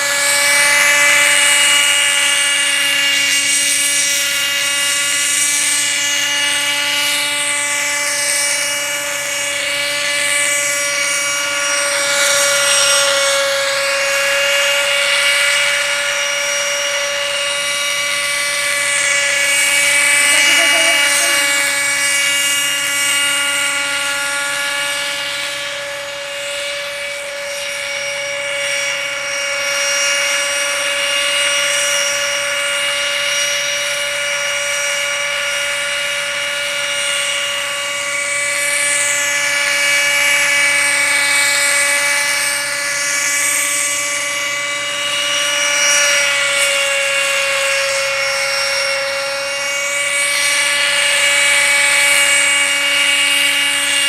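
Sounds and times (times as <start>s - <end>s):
helicopter whine and hiss: 0.0s - 54.0s.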